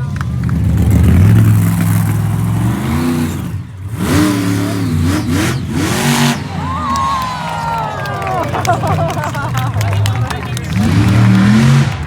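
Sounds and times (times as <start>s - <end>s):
monster truck engine revving: 0.0s - 12.0s.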